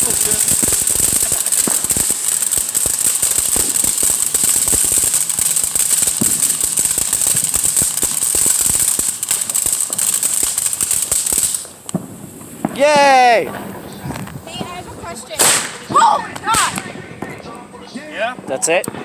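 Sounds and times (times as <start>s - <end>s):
firework crackling and hissing: 0.0s - 19.0s.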